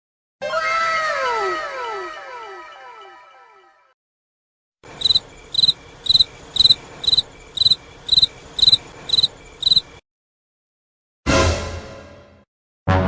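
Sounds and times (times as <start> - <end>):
cricket chirping: 4.8 - 10.0
faint outdoor background: 4.8 - 10.0.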